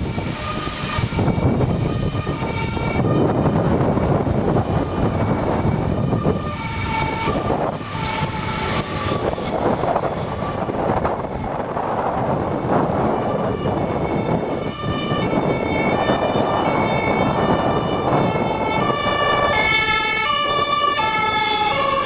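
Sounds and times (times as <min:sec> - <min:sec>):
gusty wind on microphone: 0:00.0 - 0:22.0.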